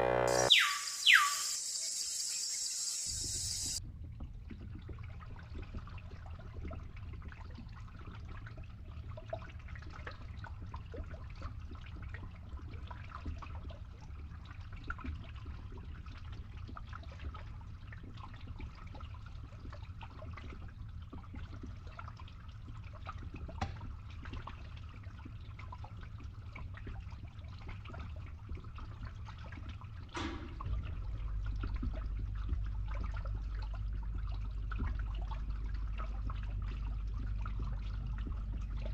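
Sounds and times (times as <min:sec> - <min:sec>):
electric motor humming: 0:00.0 - 0:03.8
water trickling and splashing: 0:01.1 - 0:38.9.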